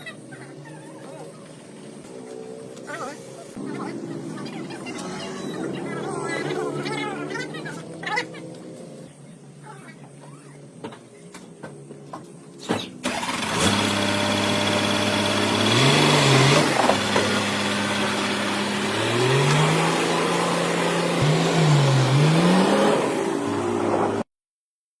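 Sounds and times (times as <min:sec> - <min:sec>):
car engine revving: 0:13.0 - 0:24.3.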